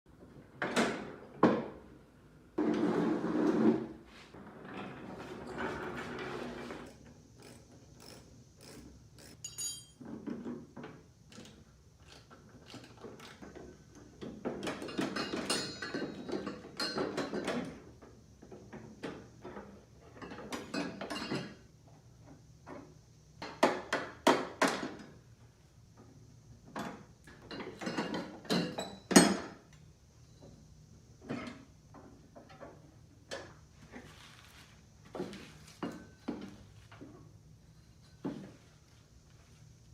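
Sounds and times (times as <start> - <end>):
ratchet clicking: 6.9 - 9.9
hand tools clanking on metal: 7.4 - 10.3, 14.6 - 17.6.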